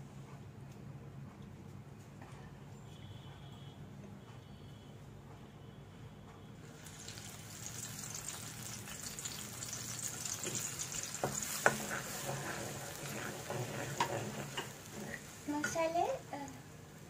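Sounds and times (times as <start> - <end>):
paste sizzling in hot oil: 6.7 - 16.6
ladle knocking and scraping pan: 10.3 - 15.9.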